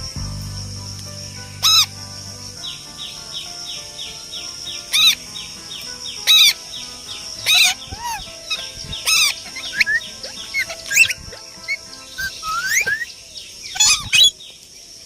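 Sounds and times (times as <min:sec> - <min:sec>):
parrot squawking: 0:01.6 - 0:02.0, 0:04.9 - 0:05.2, 0:07.4 - 0:14.4
fast even chirps: 0:05.8 - 0:14.3.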